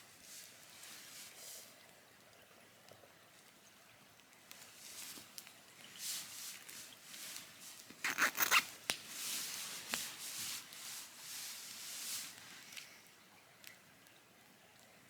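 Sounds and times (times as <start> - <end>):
rustling handling noise: 4.6 - 13.0.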